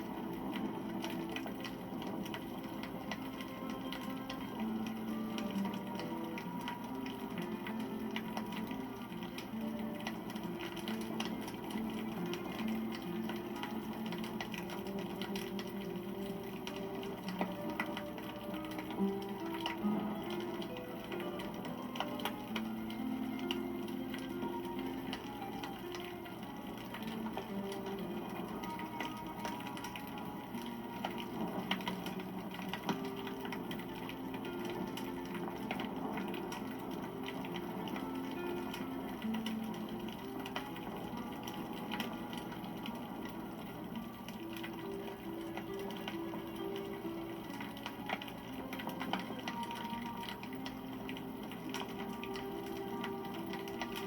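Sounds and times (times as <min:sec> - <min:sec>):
campfire crackling and popping: 0:00.0 - 0:54.0
soft held musical notes: 0:00.0 - 0:54.0.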